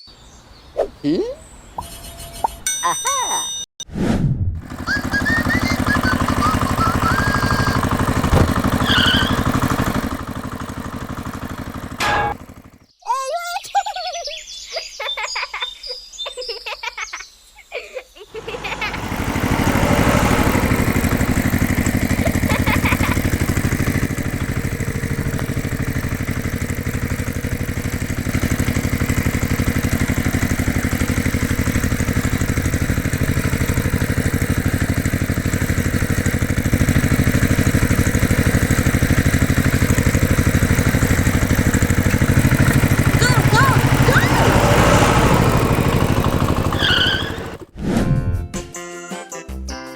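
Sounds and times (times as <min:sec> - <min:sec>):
engine running steadily: 0:04.6 - 0:12.8, 0:18.4 - 0:47.7
short chirpy pitched sounds: 0:08.8 - 0:09.6.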